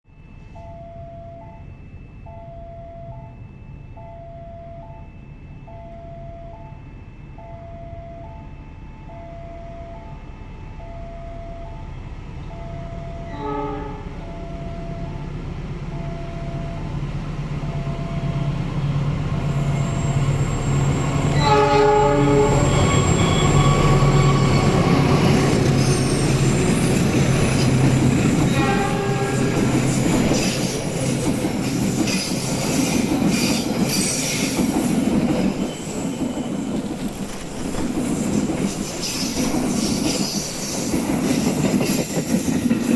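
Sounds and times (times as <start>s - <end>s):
diesel train rumble: 0.2s - 42.9s
train horn: 11.4s - 15.4s, 21.3s - 33.6s.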